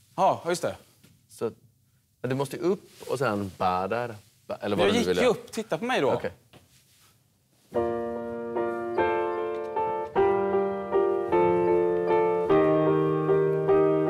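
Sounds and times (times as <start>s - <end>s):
slow piano piece: 7.7s - 14.0s.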